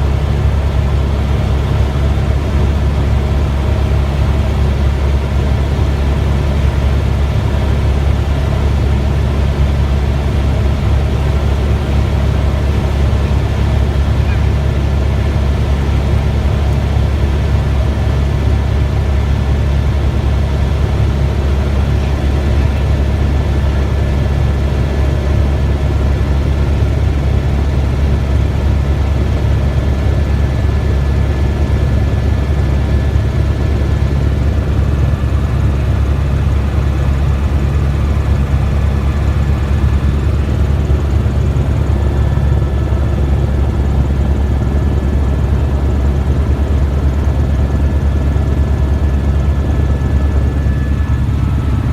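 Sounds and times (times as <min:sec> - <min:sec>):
helicopter rotor and engine drone: 0:00.0 - 0:51.9
thin steady whine: 0:30.4 - 0:51.9.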